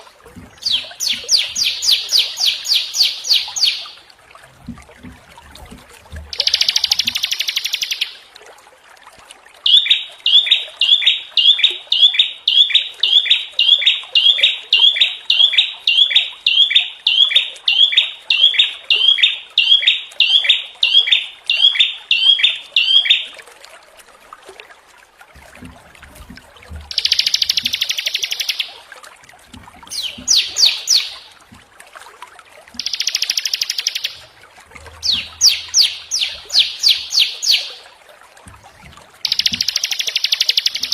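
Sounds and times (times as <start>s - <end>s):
buzzy rattling bird calls: 0.6s - 4.0s, 6.3s - 8.2s, 26.9s - 28.7s, 29.9s - 31.4s, 32.8s - 34.2s, 35.0s - 37.8s, 39.2s - 40.9s
quick bird trills: 29.9s - 31.4s, 35.0s - 37.8s.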